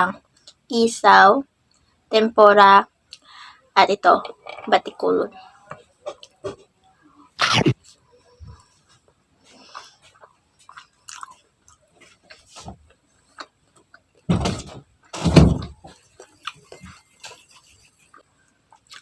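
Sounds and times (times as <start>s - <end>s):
chewing and biting food: 9.6s - 14.3s, 15.8s - 19.0s.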